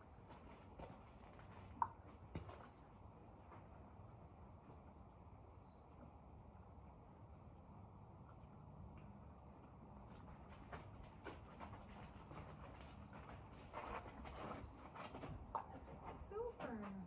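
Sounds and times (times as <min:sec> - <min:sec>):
small bird chirping: 0:02.5 - 0:06.7.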